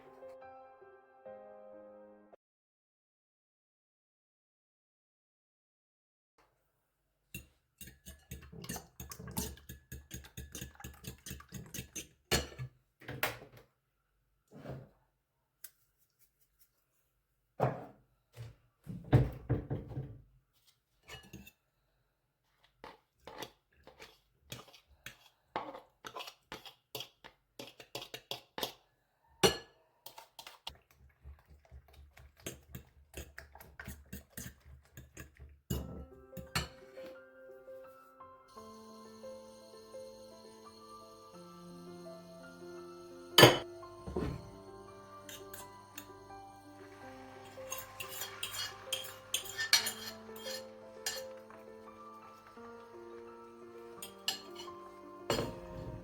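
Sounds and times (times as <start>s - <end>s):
dishes and utensils clinking: 7.3s - 12.7s, 21.0s - 21.6s, 29.4s - 30.6s, 32.4s - 37.2s, 43.4s - 56.0s.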